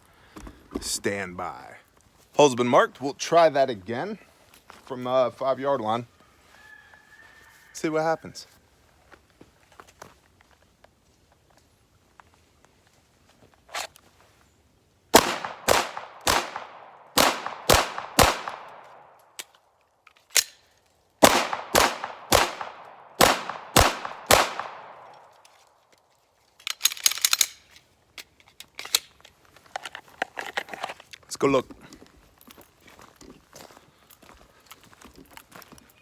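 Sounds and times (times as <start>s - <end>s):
pistol shots with echo: 15.1s - 18.9s, 21.2s - 25.1s.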